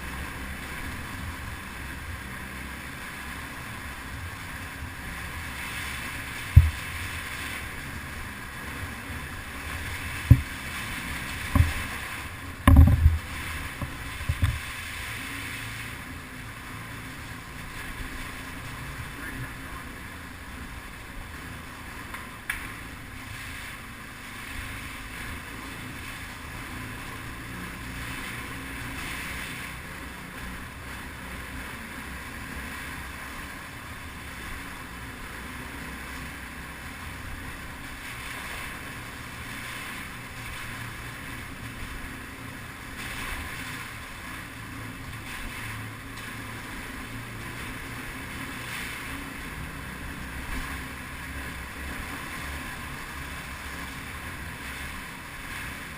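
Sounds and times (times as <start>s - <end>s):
low engine drone: 0.0s - 55.9s
wind noise on microphone: 4.0s - 16.2s.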